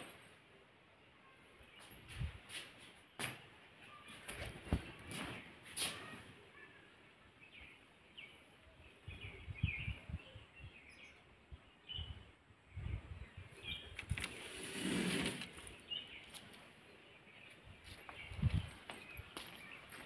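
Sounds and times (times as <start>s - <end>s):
small birds chirping: 0.0s - 20.0s
rustling noise: 1.8s - 3.1s, 4.1s - 6.3s, 13.9s - 16.7s.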